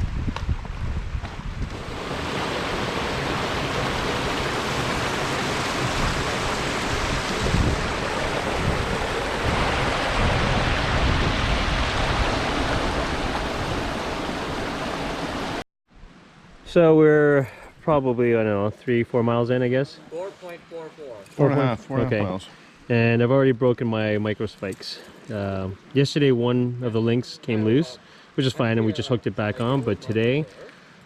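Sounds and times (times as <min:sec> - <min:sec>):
wind rushing: 0:00.0 - 0:15.5
gusts buffeting microphone: 0:00.0 - 0:15.6.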